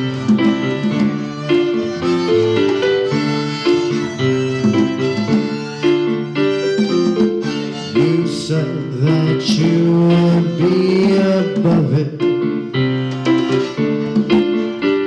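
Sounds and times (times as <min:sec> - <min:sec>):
live rock band playing: 0:00.0 - 0:15.0
sustained keyboard chords: 0:00.0 - 0:15.0.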